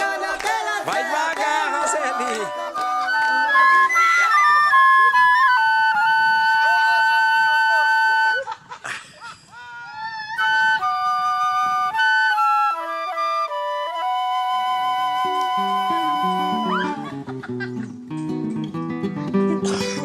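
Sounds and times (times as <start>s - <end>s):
flute melody: 0.0s - 8.7s, 10.1s - 17.4s.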